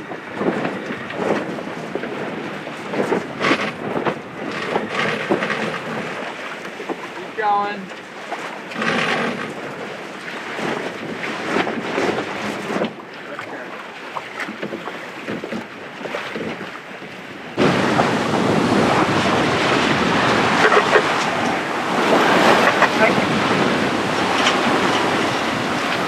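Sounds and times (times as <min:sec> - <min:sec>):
sea water rushing along hull: 0:00.0 - 0:26.0
wind buffeting microphone: 0:00.0 - 0:26.0.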